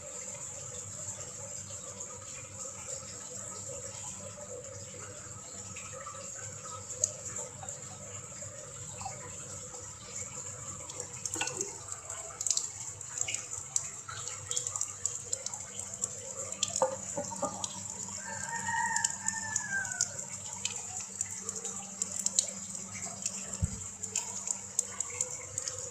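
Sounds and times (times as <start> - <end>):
water running and dripping: 0.0 - 25.9
small clicks and splashes: 2.5 - 25.9
rooster crowing: 18.2 - 20.3.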